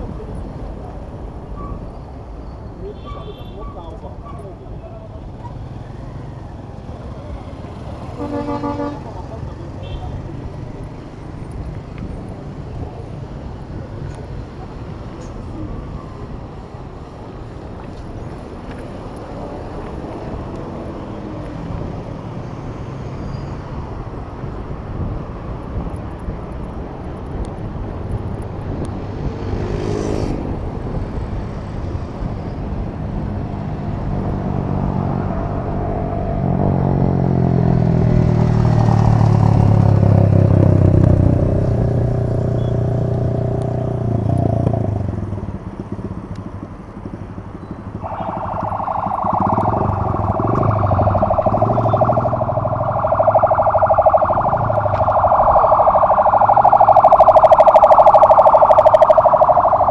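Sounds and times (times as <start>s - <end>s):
city street traffic: 0.0s - 59.9s
wind and road noise: 0.0s - 59.9s
motor vehicle engine passing: 28.9s - 45.7s.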